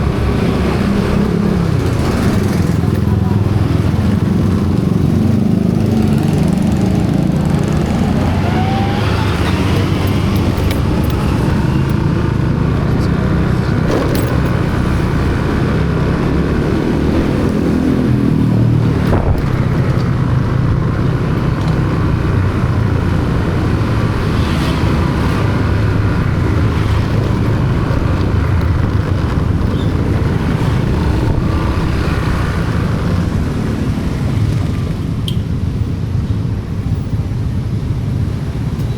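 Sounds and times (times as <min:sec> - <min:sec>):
vehicle engine and road noise: 0:00.0 - 0:38.9.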